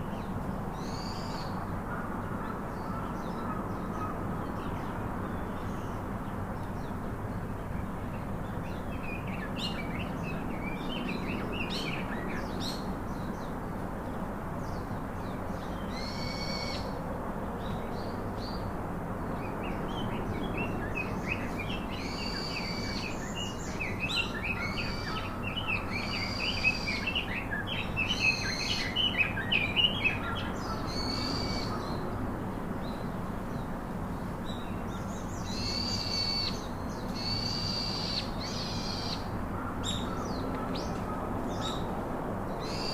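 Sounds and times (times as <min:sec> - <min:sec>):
steady background hiss: 0:00.0 - 0:42.9
wild birds calling: 0:19.6 - 0:32.1, 0:34.9 - 0:41.9, 0:42.6 - 0:42.9.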